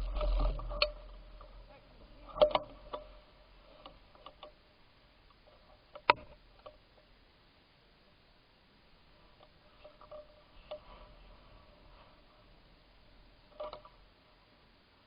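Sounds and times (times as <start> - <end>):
light clicks and ticks: 0.0 - 4.6, 13.5 - 14.0.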